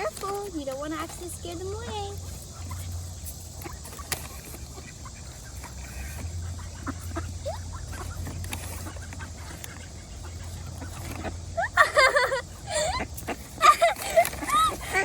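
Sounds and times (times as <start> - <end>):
ducks pecking: 0.0 - 15.0
soft duck calls: 3.6 - 11.5.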